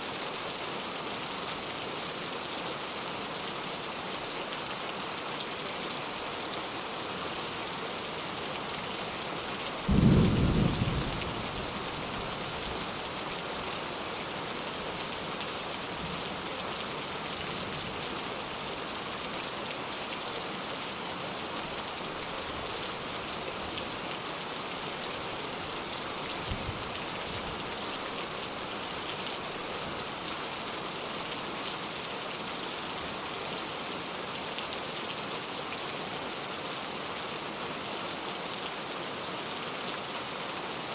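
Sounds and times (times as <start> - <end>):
heavy rain: 0.0 - 40.9
loud low thunderclap: 9.9 - 11.5.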